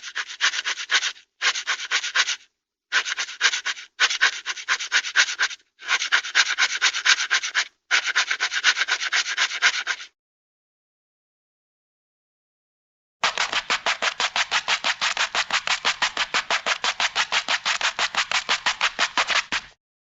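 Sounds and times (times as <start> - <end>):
dog claws scratching: 13.2 - 19.8.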